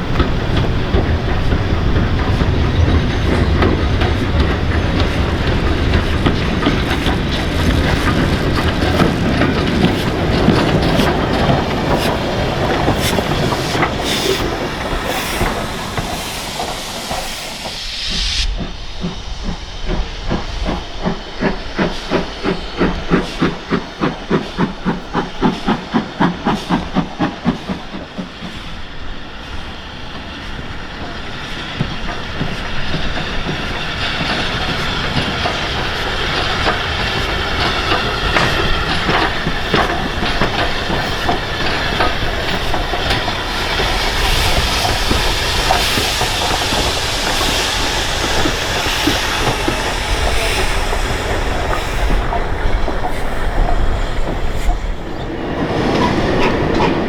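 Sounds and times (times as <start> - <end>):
wheels clicking over rail joints: 0.0 - 17.7, 21.0 - 57.0
carriages rolling past: 0.0 - 17.8, 30.8 - 57.0
steam locomotive exhaust beats: 0.0 - 57.0.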